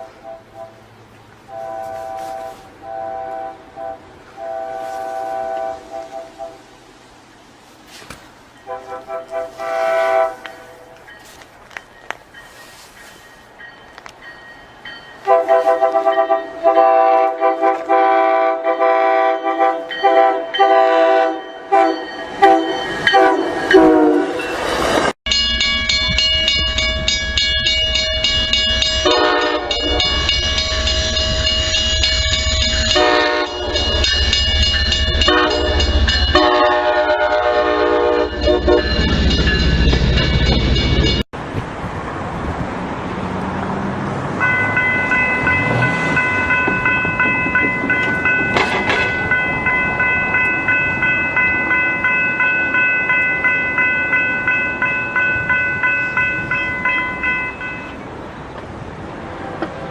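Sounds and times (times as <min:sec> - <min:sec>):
locomotive air horn blasts: 0:00.0 - 0:00.9, 0:01.5 - 0:06.6, 0:08.7 - 0:11.0, 0:15.2 - 0:24.4, 0:28.9 - 0:30.6, 0:32.8 - 0:34.1, 0:35.2 - 0:39.0
passing train rumble: 0:00.0 - 0:59.9.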